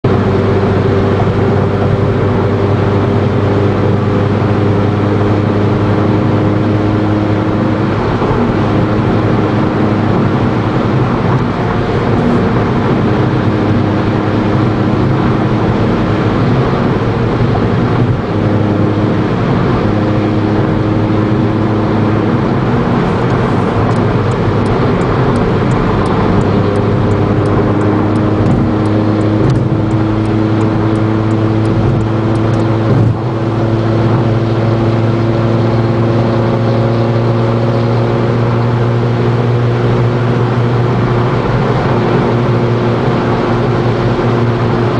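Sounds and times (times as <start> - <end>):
car exhaust drone: 0.0 - 44.9
road and tyre noise: 0.0 - 44.9
faint regular ticking: 23.2 - 33.2.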